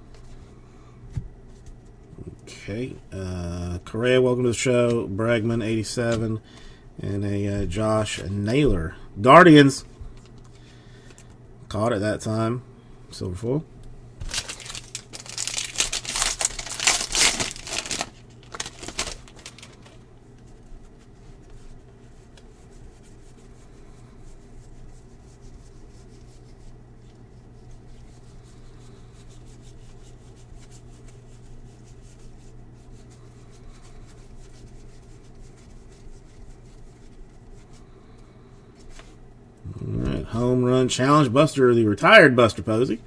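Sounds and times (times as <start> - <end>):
low steady hum: 0.0 - 43.0
wrapper tearing and crinkling: 14.2 - 20.1.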